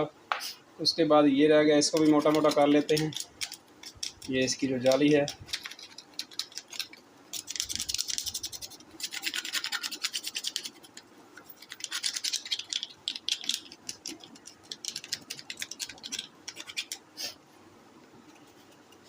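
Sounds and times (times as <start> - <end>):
scrubbing plastic mesh screen: 2.0 - 17.1.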